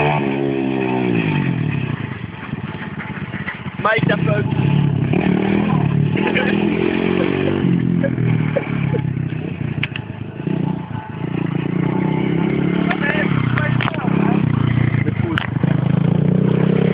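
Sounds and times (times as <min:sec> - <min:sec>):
dirt bike engine revving: 0:00.0 - 0:16.9.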